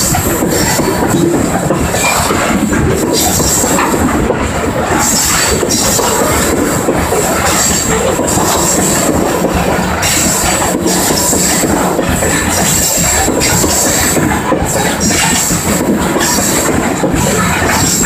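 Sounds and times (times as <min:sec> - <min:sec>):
high wheel squeal: 0:00.0 - 0:03.9
freight train wheels rumbling: 0:00.0 - 0:18.0
wheels clacking over rail joints: 0:00.0 - 0:18.0.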